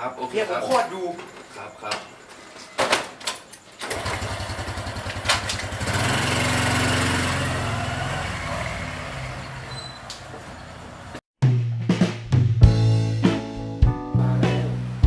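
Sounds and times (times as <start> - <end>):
small motorcycle engine revving: 3.8 - 10.4.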